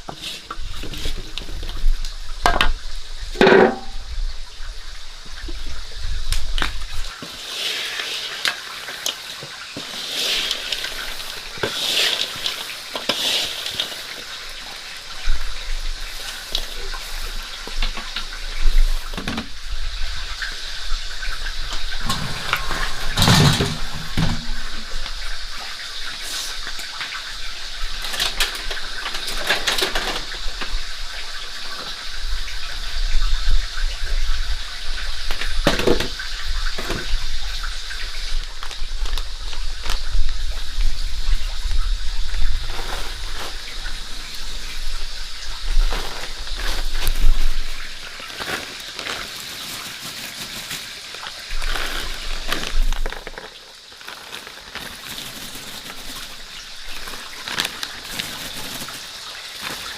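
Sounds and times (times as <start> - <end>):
water running and splashing: 0.0 - 59.9
knocks and handling sounds: 3.4 - 4.0, 22.0 - 24.8.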